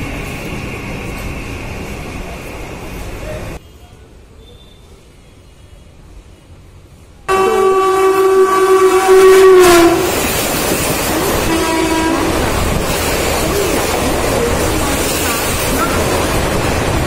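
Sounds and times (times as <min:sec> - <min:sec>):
train coaches rumbling and clattering: 0:00.0 - 0:17.0
train horn blaring: 0:07.3 - 0:12.8.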